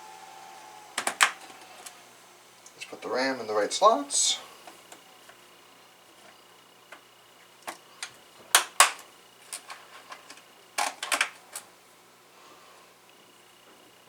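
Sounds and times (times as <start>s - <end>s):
slot latches snapping: 1.0s - 2.0s, 7.6s - 11.7s
memory sticks clicking into slots: 7.6s - 11.7s.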